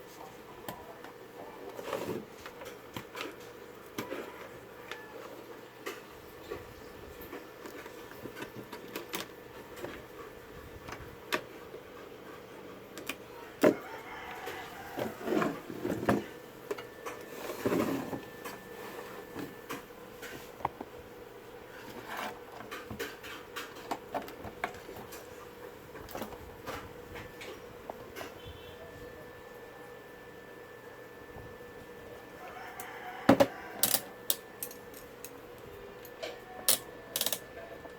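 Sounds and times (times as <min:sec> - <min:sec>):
faint steady hum: 0:00.0 - 0:37.9
scraping and rustling: 0:01.6 - 0:10.3, 0:13.8 - 0:16.4, 0:17.0 - 0:20.9, 0:21.6 - 0:28.5.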